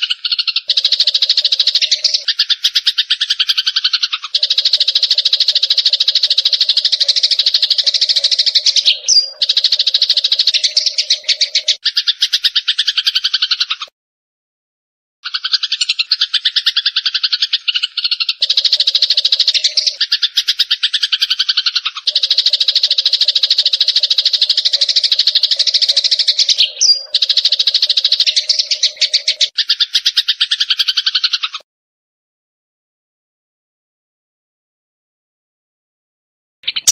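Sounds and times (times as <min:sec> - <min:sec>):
sparrow chattering: 0:00.0 - 0:13.9, 0:15.2 - 0:31.6, 0:36.6 - 0:36.9.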